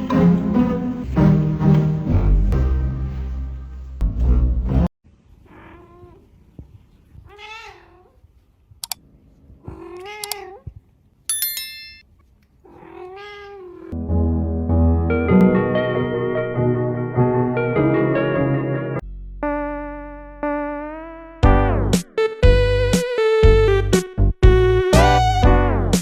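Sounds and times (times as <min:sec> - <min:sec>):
background music: 0:00.0 - 0:04.9, 0:14.0 - 0:20.4, 0:21.4 - 0:26.0
cat meowing: 0:05.4 - 0:06.3, 0:07.2 - 0:08.2, 0:09.6 - 0:10.7, 0:12.6 - 0:14.0.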